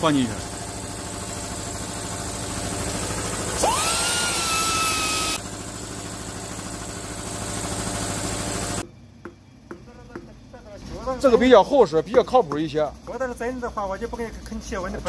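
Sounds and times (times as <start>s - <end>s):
pneumatic tool whining: 0.0s - 8.8s
steady machine hum: 0.0s - 15.0s.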